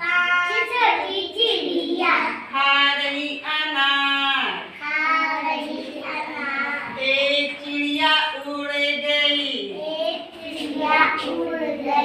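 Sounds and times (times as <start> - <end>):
children singing: 4.8 - 7.9, 9.8 - 12.0.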